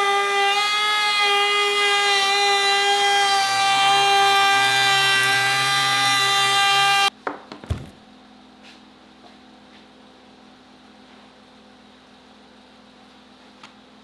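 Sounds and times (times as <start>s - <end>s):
wood router high-pitched whine: 0.0s - 7.1s.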